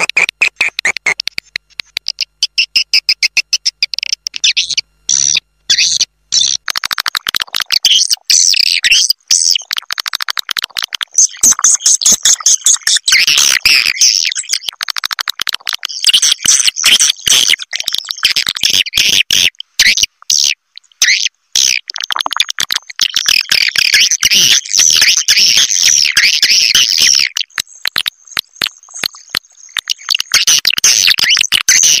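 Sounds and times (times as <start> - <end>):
swiftlets twittering chirps: 0.0 - 1.2, 22.8 - 32.0
rapid bird clicks: 0.0 - 4.5, 6.6 - 7.9, 9.6 - 13.5, 14.7 - 17.4, 27.4 - 31.6.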